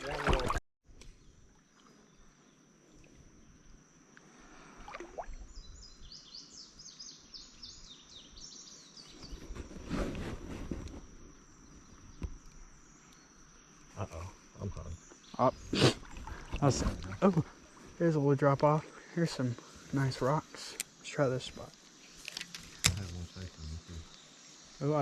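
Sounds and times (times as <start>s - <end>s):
faint high-pitched hum: 0.1s - 25.0s
songbird chirping: 5.2s - 9.7s, 11.3s - 25.0s.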